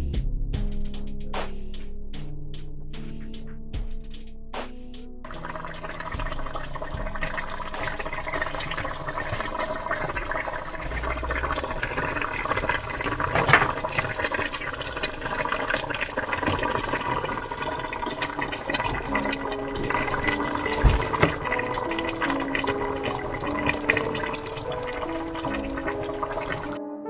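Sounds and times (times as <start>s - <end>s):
faint background music: 0.0s - 27.0s
pot of liquid bubbling: 5.3s - 26.8s.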